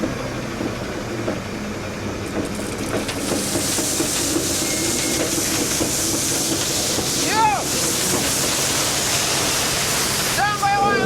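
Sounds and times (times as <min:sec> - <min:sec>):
diesel engine running: 0:00.0 - 0:11.0
loud rushing hiss: 0:03.2 - 0:11.0.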